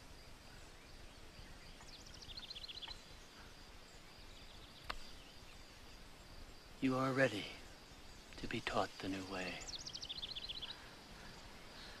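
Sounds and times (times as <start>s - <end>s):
sharp click: 4.8s - 5.0s.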